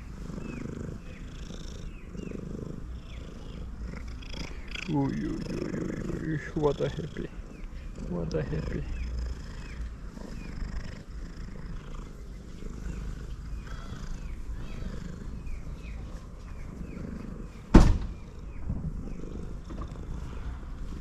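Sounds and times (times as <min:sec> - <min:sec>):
cat purring loudly: 0:00.0 - 0:21.0
sharp knock: 0:17.8 - 0:18.1.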